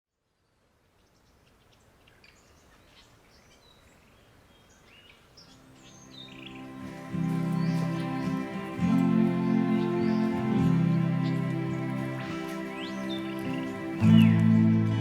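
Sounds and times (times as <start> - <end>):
birds chirping and whistling: 4.6 - 15.0
soft music with held notes: 5.4 - 15.0.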